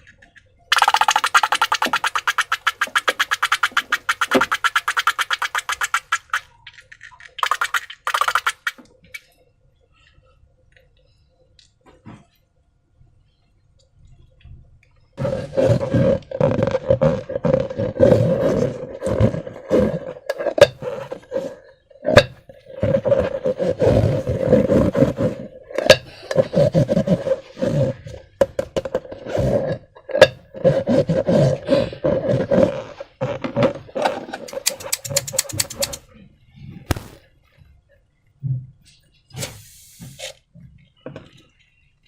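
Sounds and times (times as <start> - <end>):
rapid clicks: 34.5 - 36.0.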